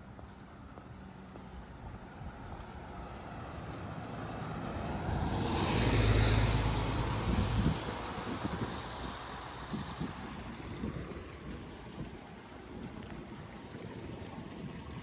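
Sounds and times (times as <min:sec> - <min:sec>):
car driving past: 0:02.6 - 0:11.9.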